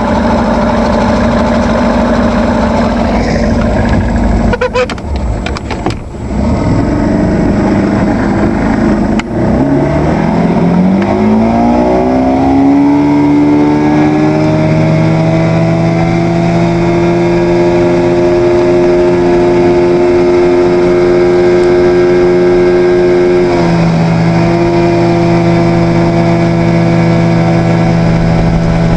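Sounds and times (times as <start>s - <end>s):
outboard motor revving: 0.0s - 28.9s.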